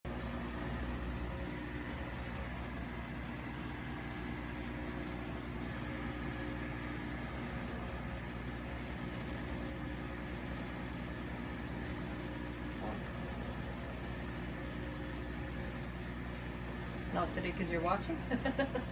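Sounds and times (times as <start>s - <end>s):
washing machine motor hum: 0.1s - 18.9s.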